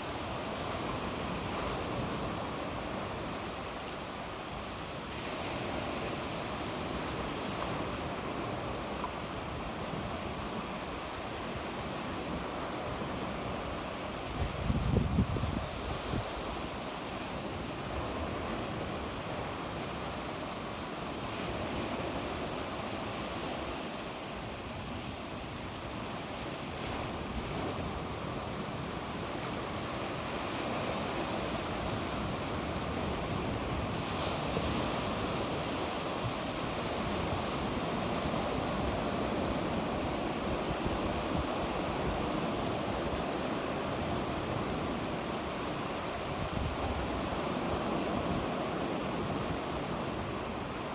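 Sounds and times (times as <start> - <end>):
sea waves breaking on shore: 0.0 - 50.9.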